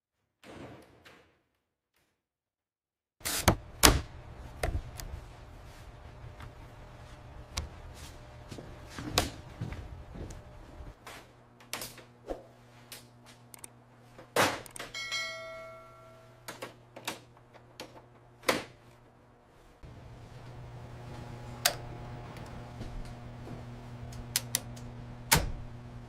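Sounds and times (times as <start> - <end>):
ringing metallic strike: 14.9 - 16.4
low hum: 18.2 - 26.0.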